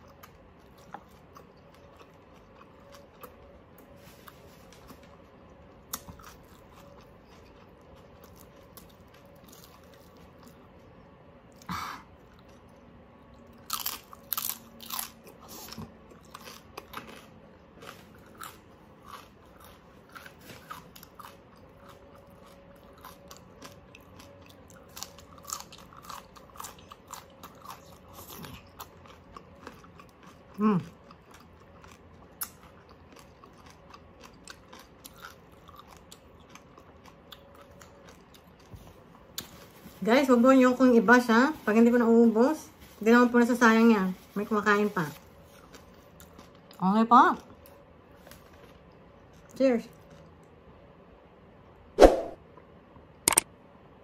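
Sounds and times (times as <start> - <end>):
crunchy chewing of pork skin: 0.0 - 39.7, 44.6 - 50.6.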